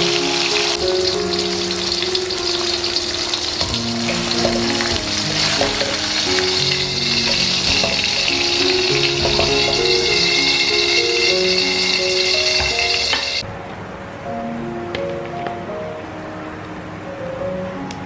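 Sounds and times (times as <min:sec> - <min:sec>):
food sizzling in a wok: 0:00.0 - 0:13.4
soft background music: 0:00.0 - 0:18.0
stirring clicks: 0:01.0 - 0:13.4.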